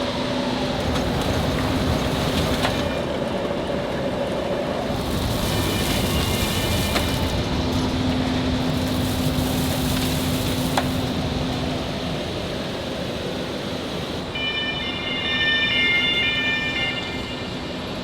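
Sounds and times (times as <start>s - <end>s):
factory machinery din: 0.0s - 18.0s
high machine squeal: 5.1s - 7.4s, 14.3s - 18.0s.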